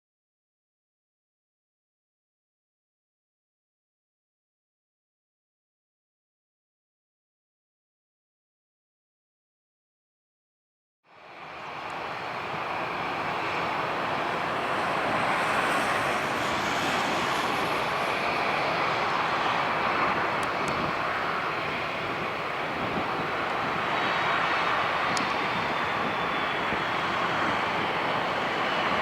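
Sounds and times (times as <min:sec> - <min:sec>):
jet engine roar: 0:11.1 - 0:29.0.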